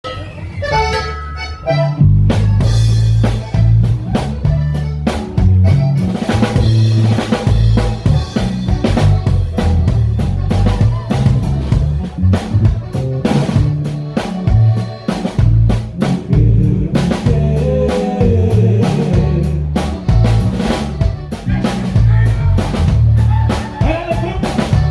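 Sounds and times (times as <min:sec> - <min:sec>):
bass line: 0:00.0 - 0:24.9
drum kit playing a beat: 0:00.0 - 0:24.9.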